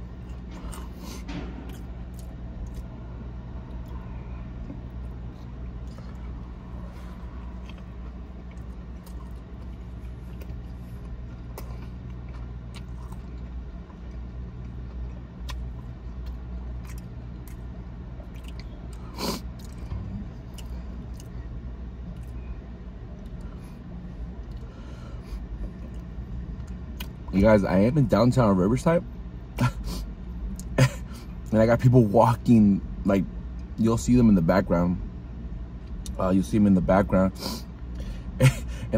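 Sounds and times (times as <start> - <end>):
low hum inside car: 0.0 - 38.9
chewing crispy sandwich: 0.1 - 3.0, 3.6 - 21.5.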